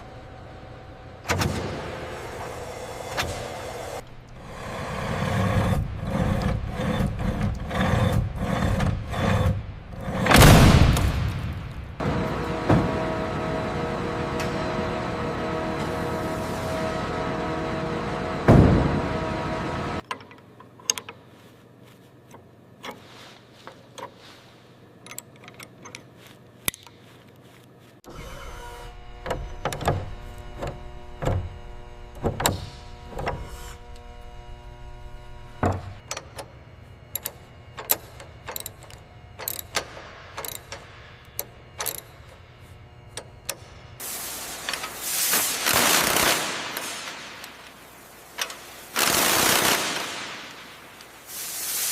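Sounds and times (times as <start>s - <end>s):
steady machine hum: 0.0s - 20.8s, 23.4s - 51.9s.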